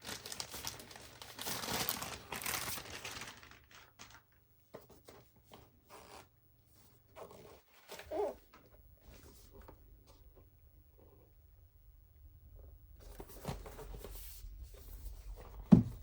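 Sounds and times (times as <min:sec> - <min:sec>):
packaging torn and crinkled: 0:00.0 - 0:04.3.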